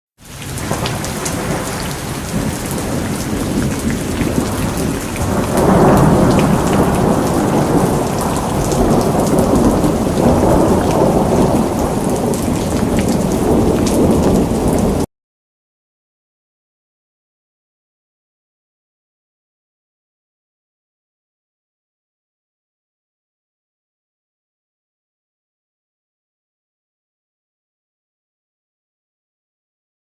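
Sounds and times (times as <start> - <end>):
steady rain: 0.2 - 15.1
rolling thunder: 0.4 - 15.1.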